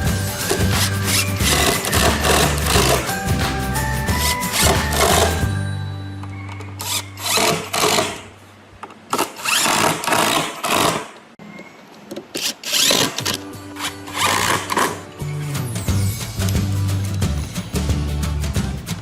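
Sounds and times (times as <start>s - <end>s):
background music: 0.0s - 8.1s, 12.8s - 19.0s
small power tool running: 0.7s - 3.1s, 4.2s - 5.4s.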